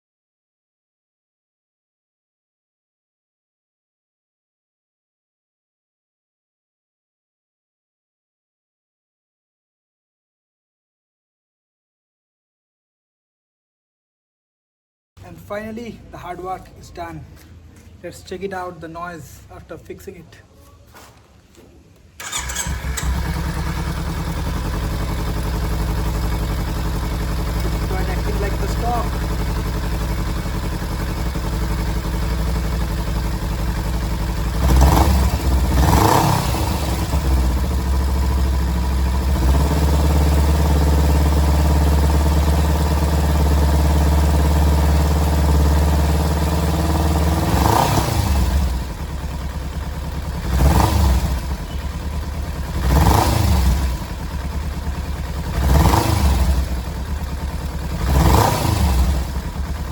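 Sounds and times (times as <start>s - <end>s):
motorcycle engine idling and revving: 22.2s - 59.9s.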